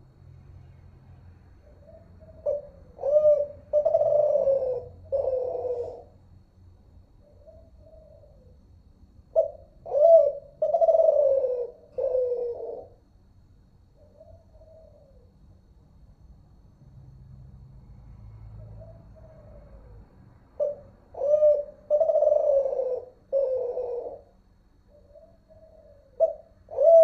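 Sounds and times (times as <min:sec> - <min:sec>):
dove cooing: 0:01.6 - 0:06.4, 0:07.2 - 0:13.2, 0:13.9 - 0:15.4, 0:18.6 - 0:27.0.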